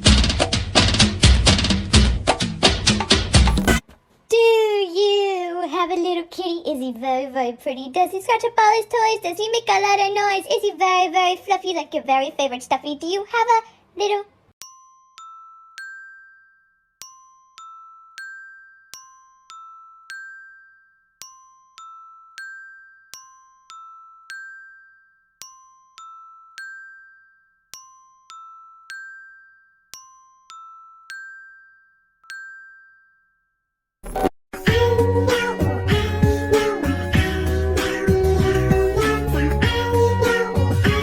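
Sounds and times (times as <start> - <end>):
glockenspiel chime notes: 14.6 - 33.6.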